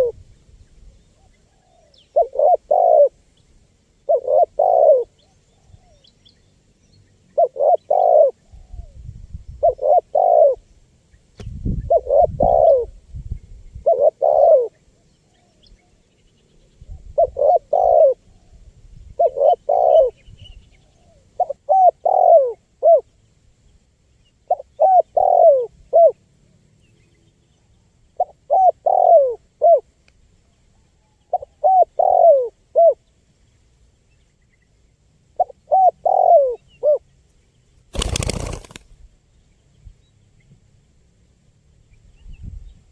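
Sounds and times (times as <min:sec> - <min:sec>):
dove cooing: 0:01.5 - 0:03.2, 0:04.1 - 0:06.0, 0:07.4 - 0:08.9, 0:09.6 - 0:10.6, 0:11.9 - 0:13.0, 0:13.8 - 0:14.8, 0:17.0 - 0:18.6, 0:19.2 - 0:20.2, 0:20.9 - 0:23.1, 0:24.5 - 0:26.2, 0:28.2 - 0:29.9, 0:31.1 - 0:33.0, 0:35.4 - 0:37.0, 0:38.0 - 0:38.8.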